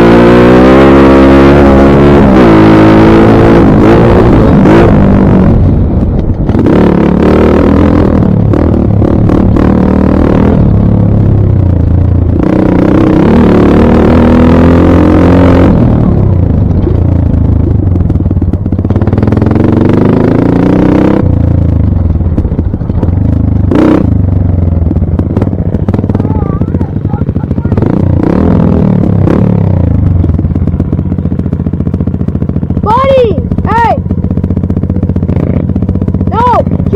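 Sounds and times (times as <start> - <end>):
dirt bike engine revving: 0.0 - 36.9.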